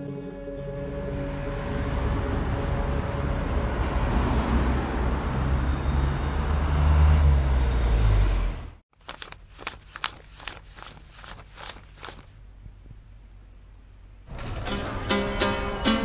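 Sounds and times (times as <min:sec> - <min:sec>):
road and wind noise: 0:01.2 - 0:08.8.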